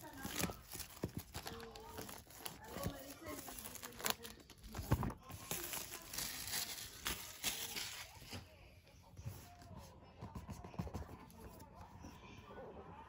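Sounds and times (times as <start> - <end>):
packaging rustling and crinkling: 0.0 - 8.5.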